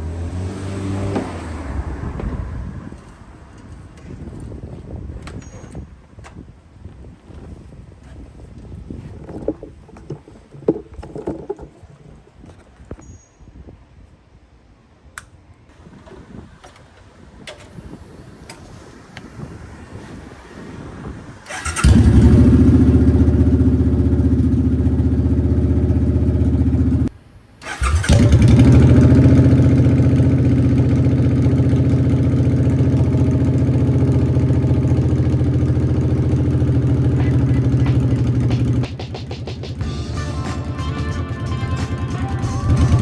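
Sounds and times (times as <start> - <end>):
motorcycle engine starting and idling: 0.0 - 6.5, 7.2 - 12.6, 15.2 - 43.0.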